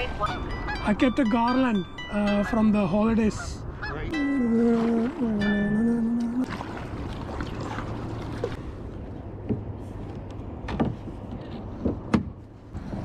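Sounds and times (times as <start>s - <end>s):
water and paddling: 3.8s - 13.0s.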